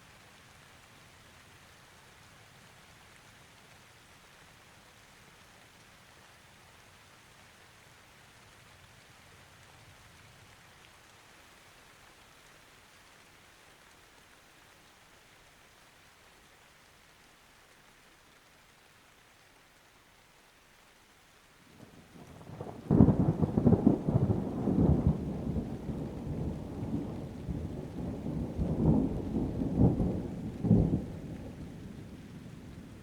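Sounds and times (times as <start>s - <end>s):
light rain pattering: 0.0s - 33.0s.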